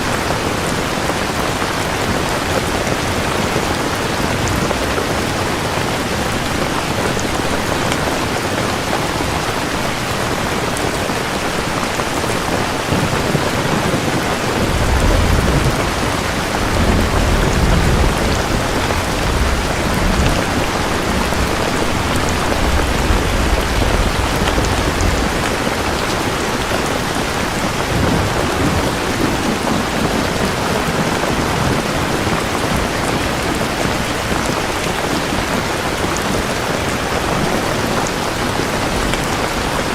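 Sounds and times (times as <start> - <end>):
heavy rain falling: 0.0 - 39.9
low rumble of thunder: 12.7 - 34.6.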